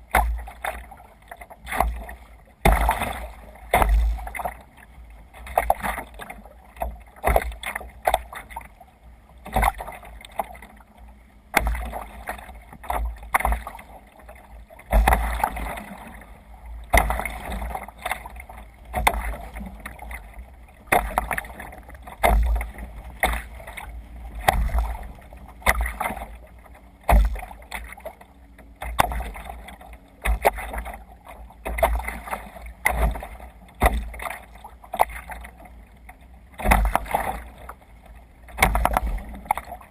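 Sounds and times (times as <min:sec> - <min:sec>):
water splashing against kayak: 0:00.0 - 0:39.9.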